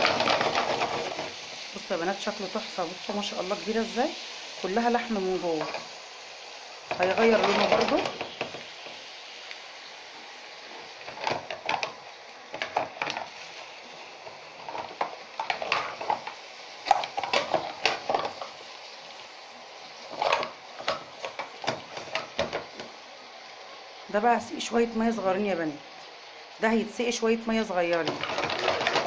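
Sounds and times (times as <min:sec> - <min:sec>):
mussels sizzling in a frying pan: 0:00.0 - 0:29.0
clinking and scraping against pan: 0:06.9 - 0:08.6, 0:11.0 - 0:13.3, 0:14.6 - 0:18.5, 0:20.1 - 0:22.9, 0:28.0 - 0:29.0.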